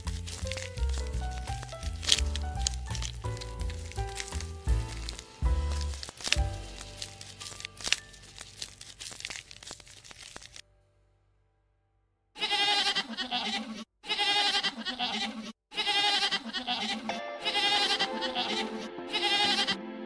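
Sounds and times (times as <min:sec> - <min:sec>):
crackling and clicking: 0:00.0 - 0:10.6
goat bleating: 0:12.4 - 0:19.8.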